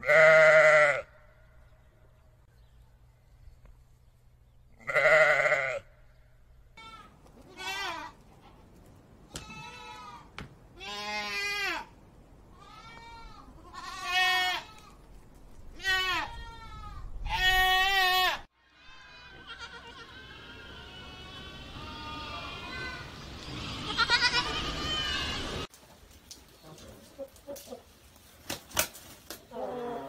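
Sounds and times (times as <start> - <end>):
young goat bleating: 0.0 - 1.1, 4.8 - 5.8, 6.8 - 8.2, 9.3 - 11.9, 12.5 - 15.0, 15.7 - 25.7
sheep bleating: 0.0 - 1.2, 4.8 - 5.9, 6.8 - 8.2, 12.6 - 15.0, 15.8 - 25.7.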